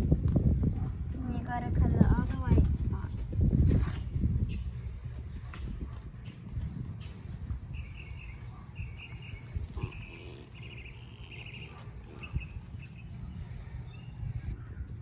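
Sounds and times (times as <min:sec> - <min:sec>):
wind rumble on microphone: 0:00.0 - 0:15.0
bird chirping in trills: 0:07.0 - 0:14.5.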